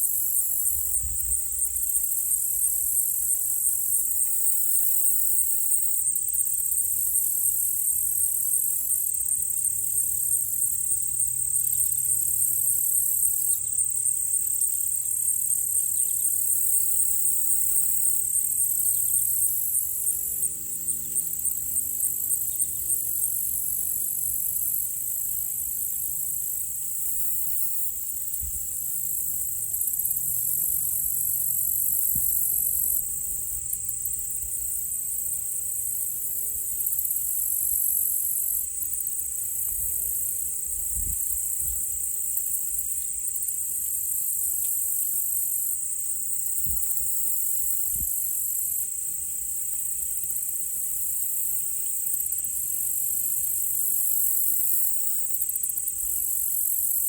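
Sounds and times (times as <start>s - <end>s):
crickets and katydids chirping: 0.0s - 57.0s
distant propeller plane drone: 17.3s - 24.6s.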